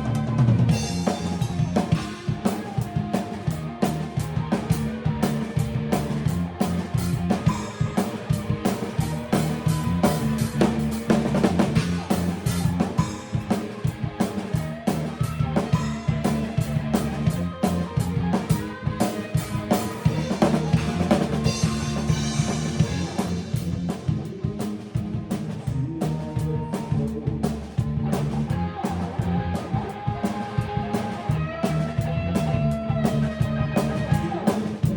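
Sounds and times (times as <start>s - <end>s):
band playing: 0.0s - 34.9s
drum kit hits: 6.0s - 24.1s.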